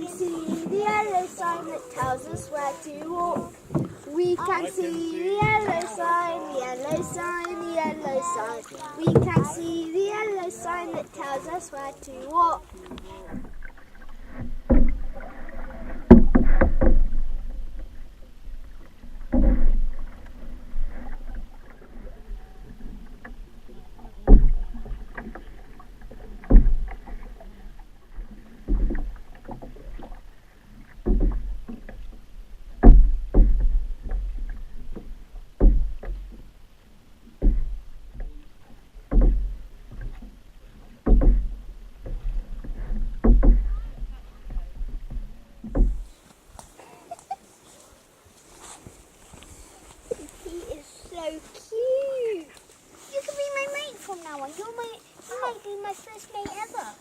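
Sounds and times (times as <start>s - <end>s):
paddle knocking canoe: 0.0s - 47.9s, 48.6s - 57.0s
paddle strokes splashing: 0.0s - 57.0s.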